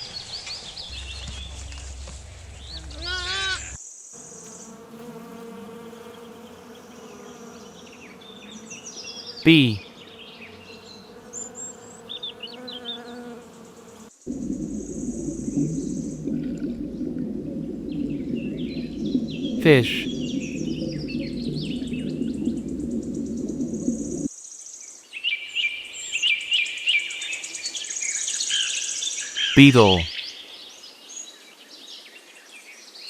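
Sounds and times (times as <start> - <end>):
bees buzzing: 4.2 - 24.3.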